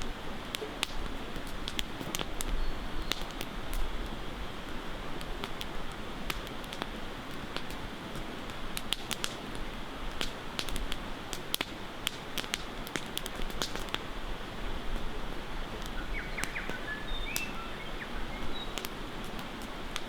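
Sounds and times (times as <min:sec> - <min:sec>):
campfire crackling: 0:00.0 - 0:20.0.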